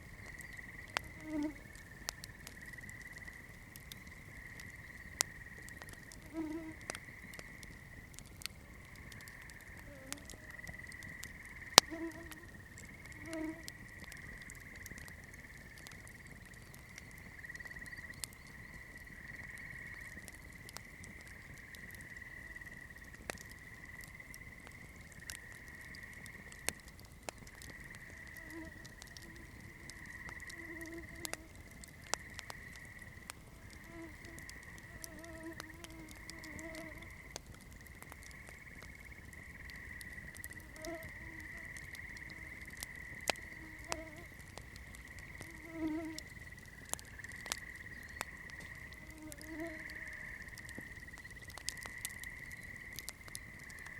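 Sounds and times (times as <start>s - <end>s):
campfire crackling and popping: 0.0s - 53.9s
low rush of flames: 0.0s - 53.9s.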